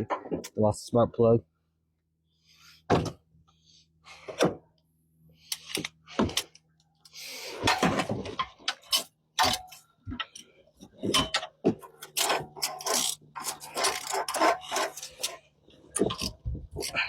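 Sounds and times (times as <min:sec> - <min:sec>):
rough scraping and rustling: 0:12.1 - 0:17.0.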